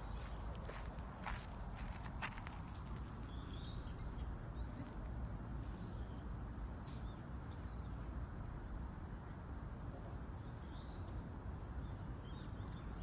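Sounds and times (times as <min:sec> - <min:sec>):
footstep: 0:00.0 - 0:03.4
songbirds chirping: 0:00.0 - 0:13.0.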